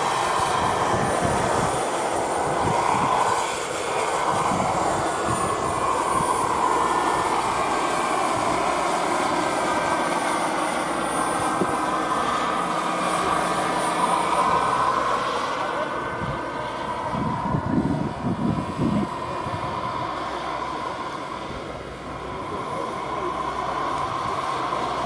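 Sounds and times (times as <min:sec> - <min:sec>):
model helicopter motor whining: 0:00.0 - 0:25.0.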